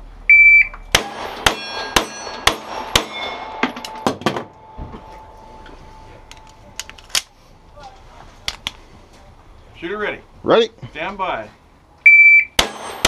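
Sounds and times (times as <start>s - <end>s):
pistol shots: 0.9s - 4.5s, 12.6s - 13.0s
steel target plates ringing: 0.9s - 6.8s, 12.6s - 13.0s.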